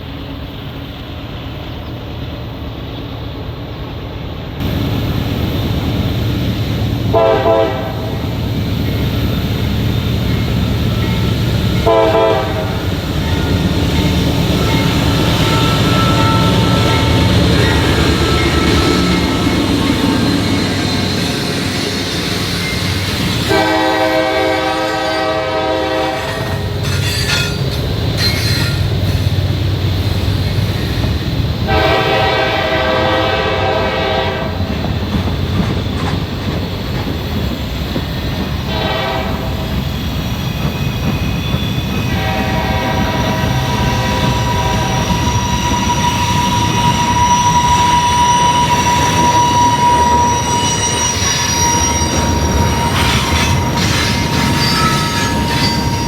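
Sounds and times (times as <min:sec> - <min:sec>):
passing train rumble: 0:00.0 - 0:56.0
locomotive horn: 0:07.1 - 0:08.2, 0:11.8 - 0:13.8, 0:14.4 - 0:21.2, 0:23.2 - 0:27.2, 0:31.7 - 0:34.6, 0:38.7 - 0:39.6, 0:42.1 - 0:56.0
high wheel squeal: 0:12.6 - 0:31.6, 0:39.6 - 0:56.0.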